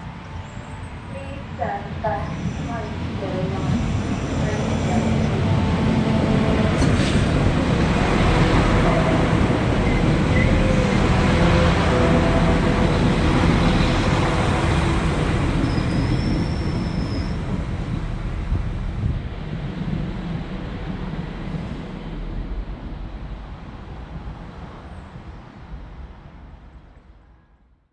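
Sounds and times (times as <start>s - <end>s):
diesel engines: 0.0s - 26.1s
train wheels rumbling on rail: 0.8s - 27.4s
high squeal: 15.6s - 17.4s.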